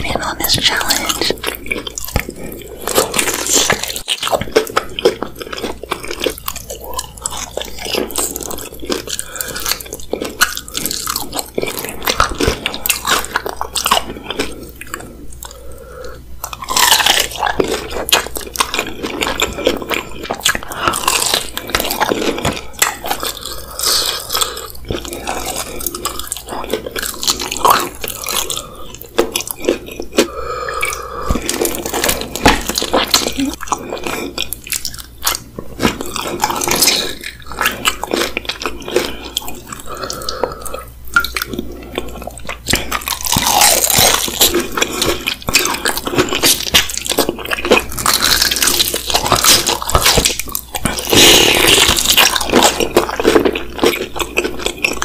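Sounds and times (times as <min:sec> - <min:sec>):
wet chewing: 0:00.0 - 0:55.0
crunchy chicken bites: 0:01.0 - 0:15.6, 0:16.4 - 0:55.0.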